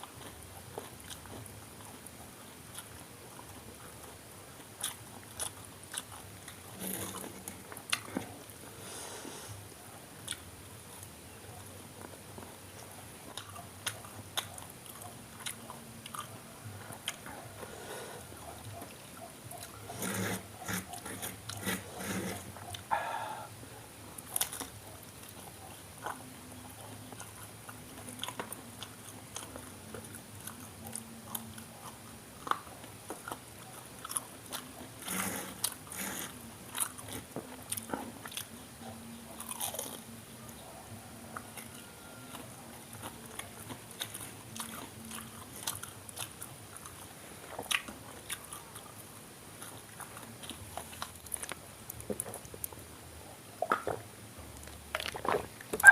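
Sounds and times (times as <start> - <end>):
crunchy bites and chewing: 24.2 - 40.6, 41.3 - 52.8, 54.6 - 55.9.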